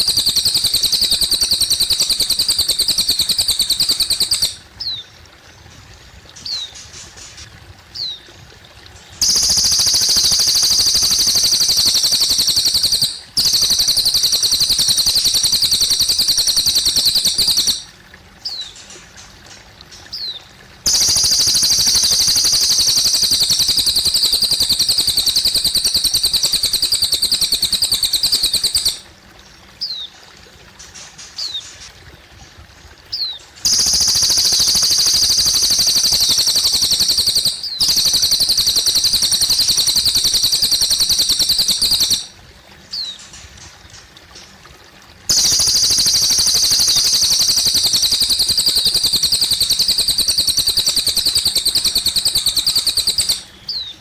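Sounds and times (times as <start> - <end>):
bird singing rapid trills: 0.0 - 5.1, 9.0 - 18.9, 20.0 - 29.0, 33.1 - 43.4, 45.3 - 54.0
water trickling: 0.0 - 54.0.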